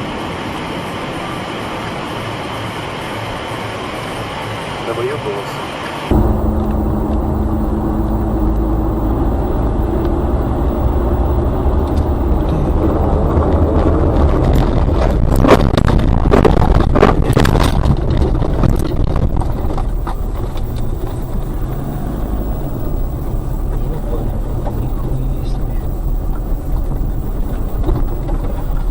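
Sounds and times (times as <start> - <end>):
sharp knocks and bangs: 6.1 - 15.0, 18.5 - 28.9
car engine and road rumble: 6.1 - 28.9.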